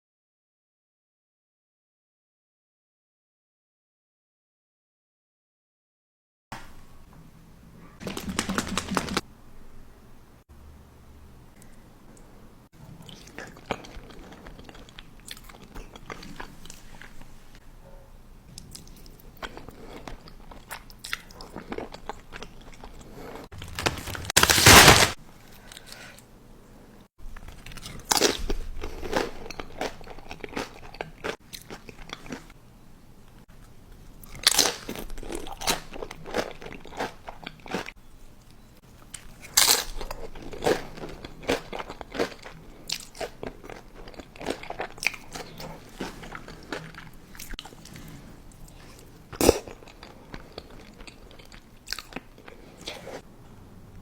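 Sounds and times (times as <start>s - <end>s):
person chewing crunchy food: 12.8s - 17.3s, 18.5s - 25.2s, 27.3s - 32.6s, 34.2s - 53.3s.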